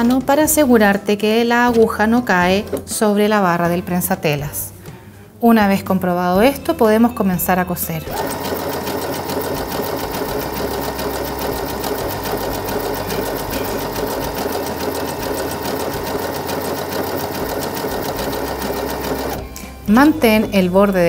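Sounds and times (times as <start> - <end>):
sewing machine stitching: 8.1 - 19.5.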